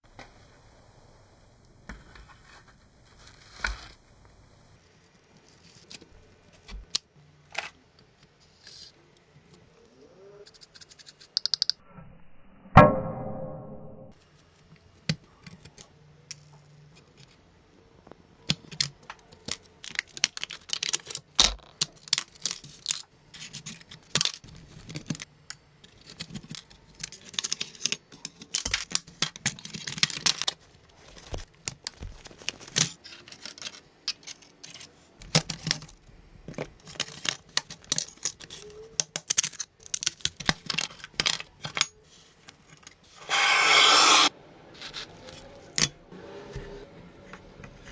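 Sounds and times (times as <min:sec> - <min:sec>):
scraping and rubbing strokes: 0:43.0 - 0:45.5
scrubbing or tearing: 0:43.2 - 0:45.2.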